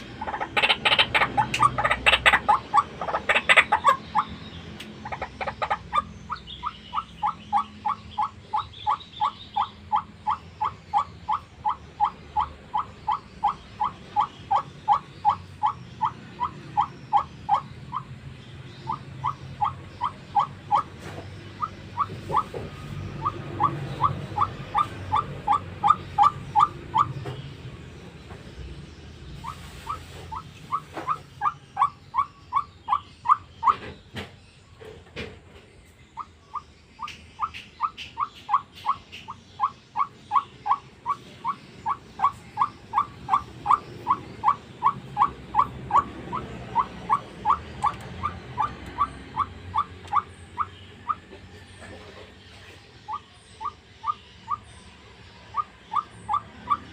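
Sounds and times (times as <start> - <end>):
waterhen calling: 0.0 - 18.1, 29.4 - 33.8.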